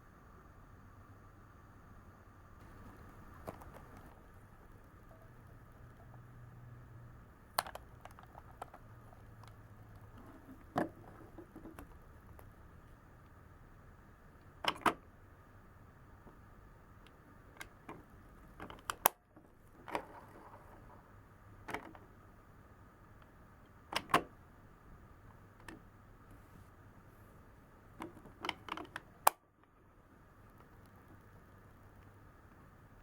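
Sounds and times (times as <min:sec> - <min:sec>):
sharp plastic snaps: 0:07.5 - 0:08.8, 0:28.0 - 0:29.4
plastic toy clicking and knocking: 0:07.6 - 0:08.9.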